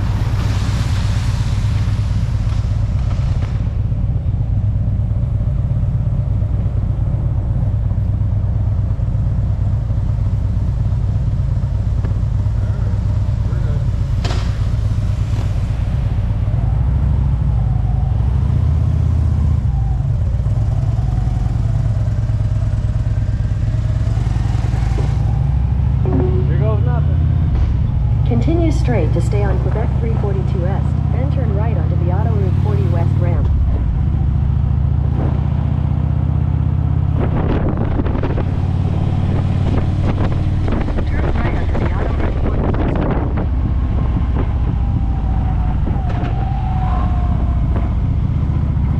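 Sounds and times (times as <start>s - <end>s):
motorcycle engine running: 19.8s - 48.9s
wind buffeting microphone: 24.8s - 48.9s.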